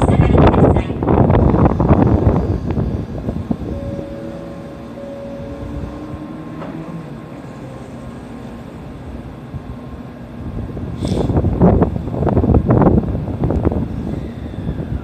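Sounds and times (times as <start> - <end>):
steady tones shifting in pitch: 1.6 - 10.0.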